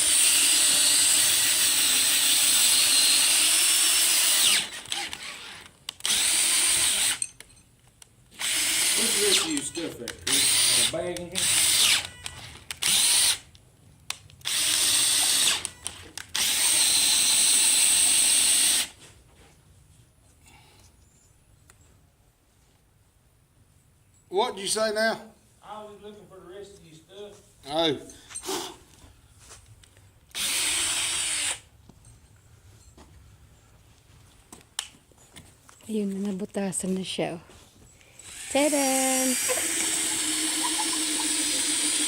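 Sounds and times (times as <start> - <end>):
power drill boring through wood: 0.0 - 7.3, 8.3 - 13.5, 14.4 - 19.0, 30.3 - 31.7, 38.1 - 42.0.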